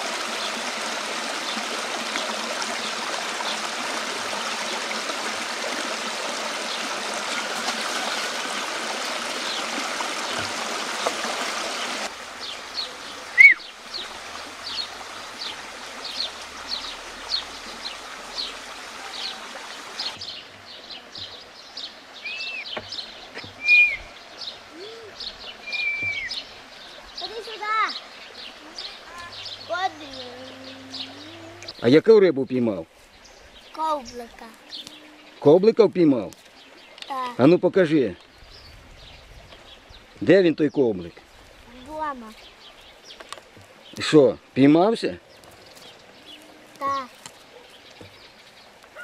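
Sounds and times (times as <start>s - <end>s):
river water rushing: 0.0s - 32.3s
small birds chirping: 9.0s - 49.0s.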